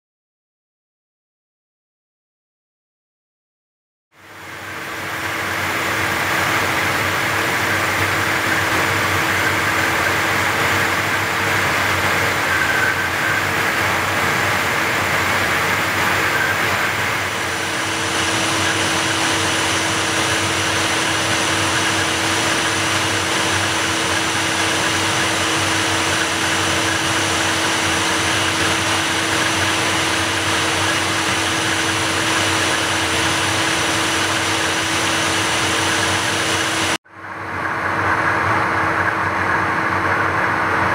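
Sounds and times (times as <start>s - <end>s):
high steady whine: 4.2s - 40.9s
jet engines humming: 4.2s - 40.9s
airflow rushing: 4.4s - 40.9s
steady tones: 5.0s - 37.0s.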